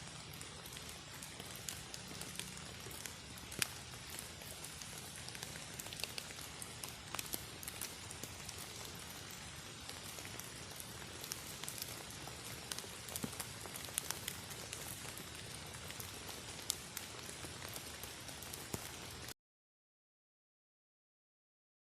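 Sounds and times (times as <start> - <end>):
raindrops ticking: 0.0 - 19.3
steady rain hiss: 0.0 - 19.4.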